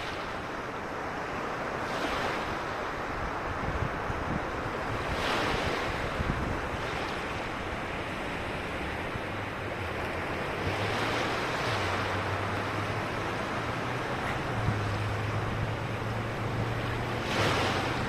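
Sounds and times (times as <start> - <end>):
ocean waves breaking on beach: 0.0 - 18.0
wind buffeting microphone: 0.0 - 18.0.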